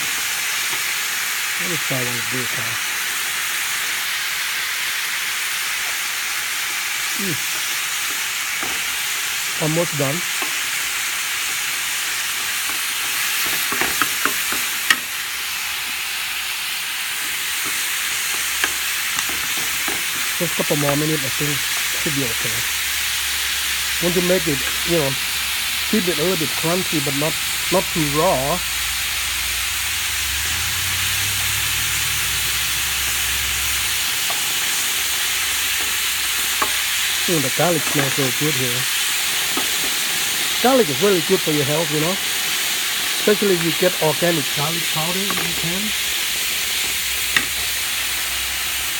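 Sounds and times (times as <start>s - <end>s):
green beans sizzling in oil: 0.0s - 48.9s
stirring clicks: 34.0s - 40.7s.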